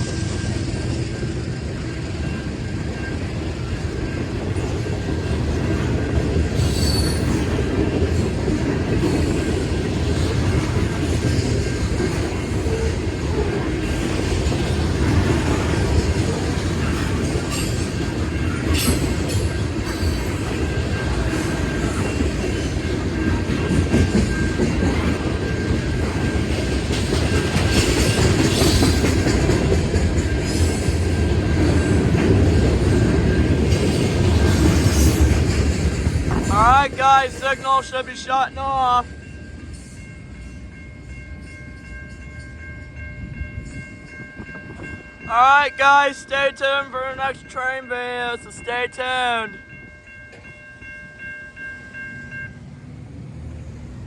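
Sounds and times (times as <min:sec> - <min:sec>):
train wheels rumbling on rail: 0:00.0 - 0:54.0
high wheel squeals: 0:06.6 - 0:07.5.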